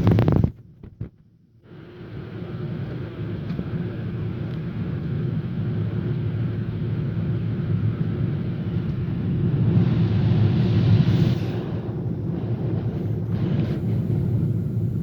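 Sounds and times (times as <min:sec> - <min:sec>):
low rumble of engines and airflow: 0:00.0 - 0:15.0
cabin hiss: 0:09.7 - 0:15.0.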